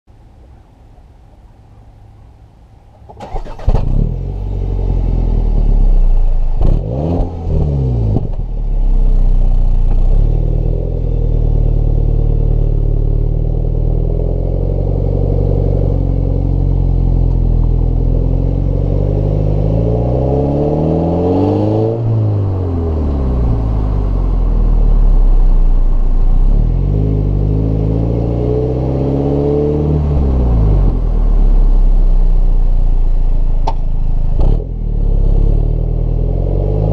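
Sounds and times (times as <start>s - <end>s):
car engine idling and revving: 0.2s - 36.9s
car engine starting: 1.2s - 36.9s.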